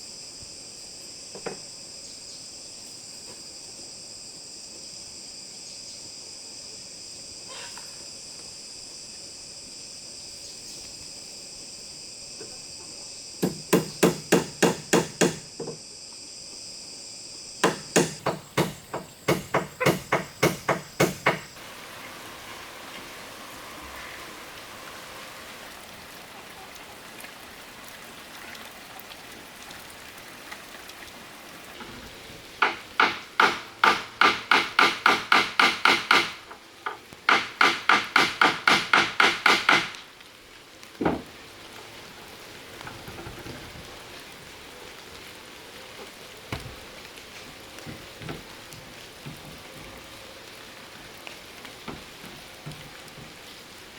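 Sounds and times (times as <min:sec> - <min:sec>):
hammer striking wood: 0:13.4 - 0:15.8, 0:17.6 - 0:21.6, 0:32.6 - 0:40.0.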